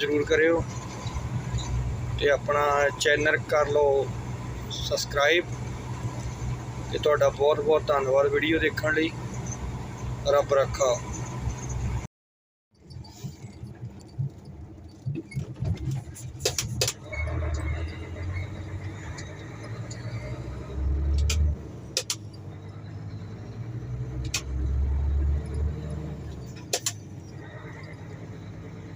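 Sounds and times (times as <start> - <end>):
sharp clicks and rattles: 12.8 - 20.2, 21.0 - 22.6, 24.1 - 28.0.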